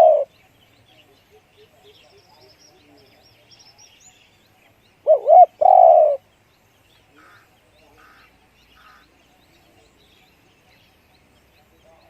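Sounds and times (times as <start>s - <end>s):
dove cooing: 0.0s - 0.3s, 5.0s - 6.2s.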